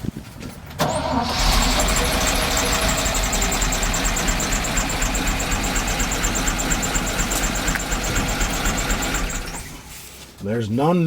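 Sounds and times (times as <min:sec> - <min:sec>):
truck engine idling: 0:00.8 - 0:10.2
fast light engine ticking: 0:01.3 - 0:09.8.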